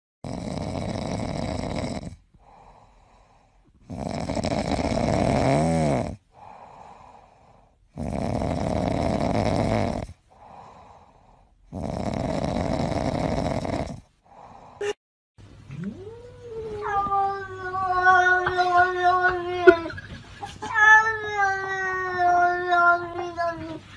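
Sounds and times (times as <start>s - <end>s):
cat snoring: 0.2s - 14.7s
cat breathing: 2.4s - 3.8s, 6.3s - 7.8s, 10.3s - 11.7s.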